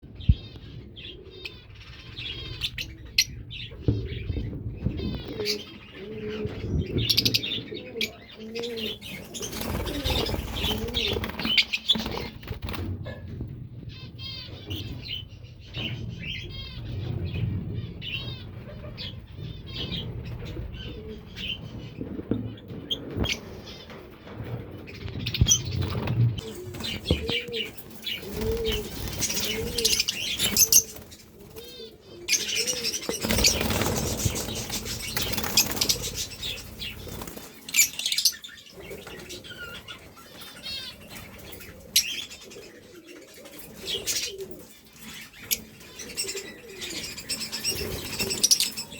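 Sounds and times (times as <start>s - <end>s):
lovebirds chirping and squawking: 0.0s - 48.9s
low repeated cooing: 0.4s - 11.6s, 26.3s - 37.4s, 41.1s - 48.9s
wing flapping: 8.7s - 13.5s, 18.3s - 31.8s, 32.5s - 38.0s.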